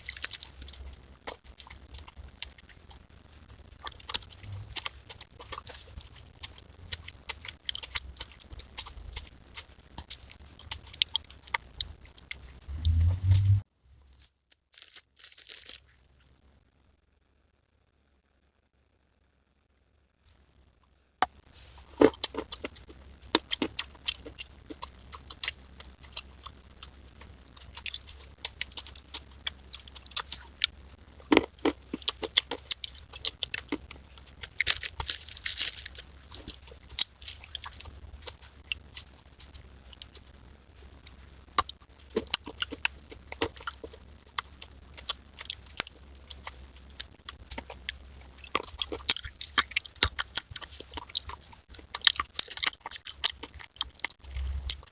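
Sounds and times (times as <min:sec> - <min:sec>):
clay being chewed crunching: 0:00.0 - 0:13.5, 0:14.2 - 0:16.0, 0:21.2 - 0:54.9
low hum: 0:03.0 - 0:10.0, 0:11.8 - 0:14.1, 0:54.2 - 0:54.9.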